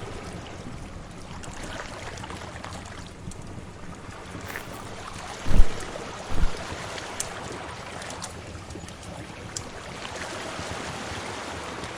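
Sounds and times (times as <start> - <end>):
deep low thumps: 5.5 - 6.7.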